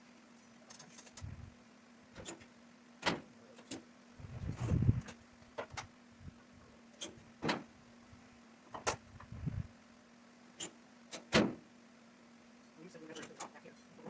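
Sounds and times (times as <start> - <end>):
faint steady hum: 0.0 - 14.0
knocks and clunks of shop work: 2.1 - 3.9, 7.0 - 7.7, 10.6 - 11.7.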